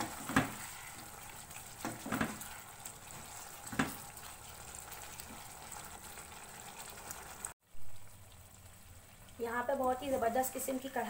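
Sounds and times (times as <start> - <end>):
spoon scraping and knocking pan: 0.0 - 4.1
food sizzling in oil: 0.0 - 11.0.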